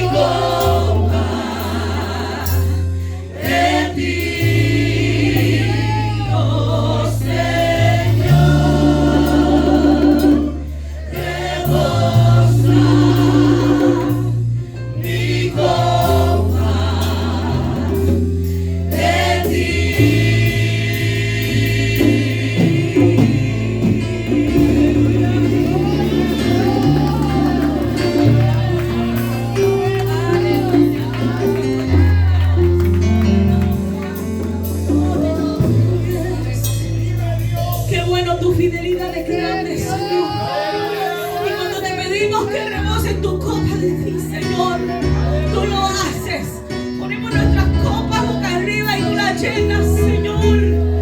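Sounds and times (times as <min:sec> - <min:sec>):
choir singing: 0:00.0 - 0:36.8
held bass and keyboard notes: 0:00.0 - 0:51.0.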